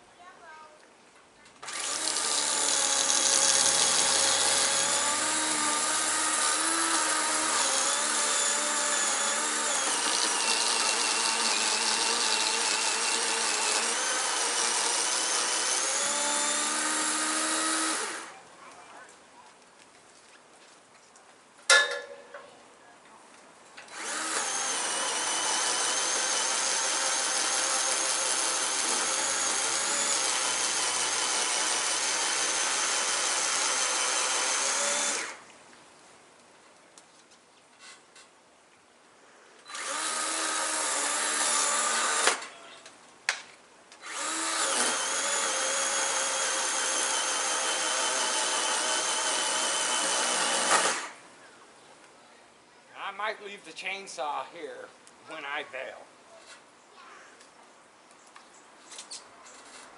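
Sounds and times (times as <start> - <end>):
chainsaw cutting tree limb: 1.6 - 18.4, 23.9 - 35.5, 39.7 - 42.6, 44.0 - 51.2.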